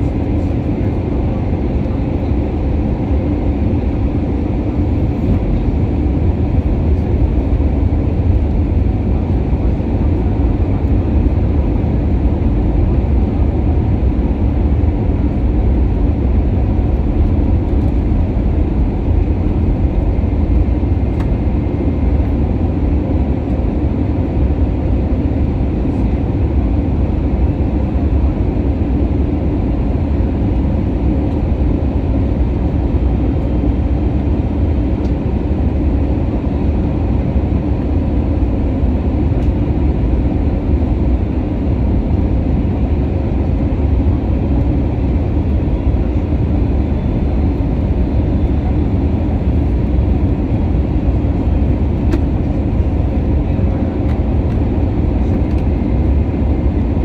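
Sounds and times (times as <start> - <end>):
airplane cabin engine rumble: 0.0 - 57.0.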